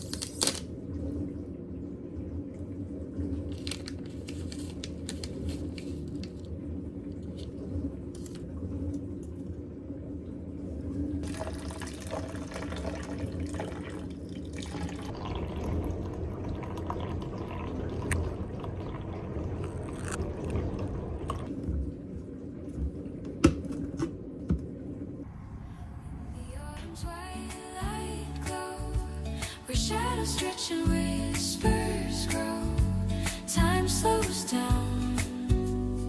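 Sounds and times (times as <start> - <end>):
water pouring: 0.0 - 25.3.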